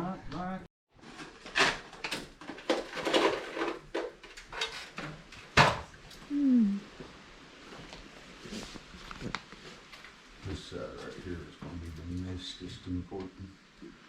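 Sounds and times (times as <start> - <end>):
knocks and scrapes: 1.0 - 5.9.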